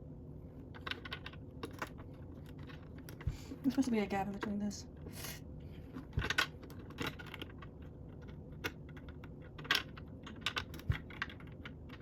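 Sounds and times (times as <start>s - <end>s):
plastic bricks clicking: 6.2s - 12.0s.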